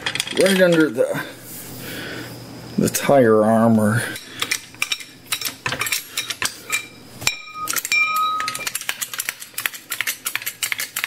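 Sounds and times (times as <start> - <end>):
metallic clicking and clinking: 4.2 - 11.0
ringing metal clink: 6.2 - 8.8.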